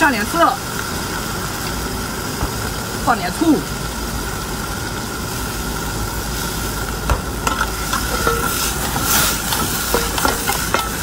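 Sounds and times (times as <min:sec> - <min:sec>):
seafood sizzling in a wok: 0:00.0 - 0:11.0
metal ladle clinking on wok: 0:07.4 - 0:11.0.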